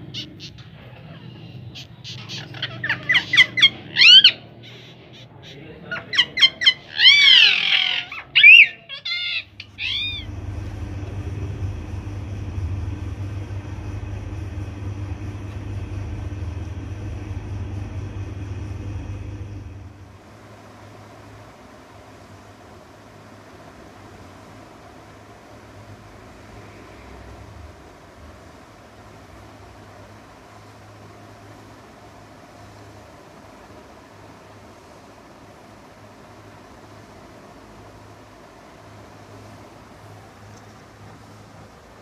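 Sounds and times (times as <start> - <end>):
parrot chick squawking: 0.0 - 10.3
steady low hum: 0.0 - 42.0.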